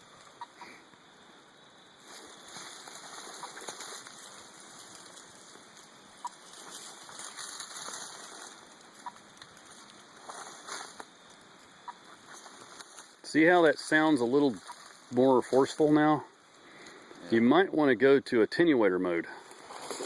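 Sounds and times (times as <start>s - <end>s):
footsteps crunching dry leaves: 2.0s - 16.6s, 19.4s - 20.0s.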